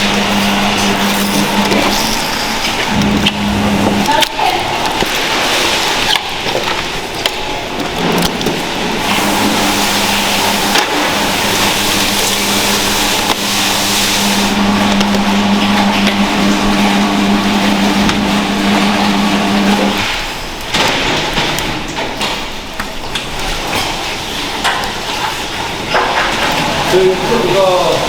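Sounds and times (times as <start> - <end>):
machine humming: 0.0 - 20.8.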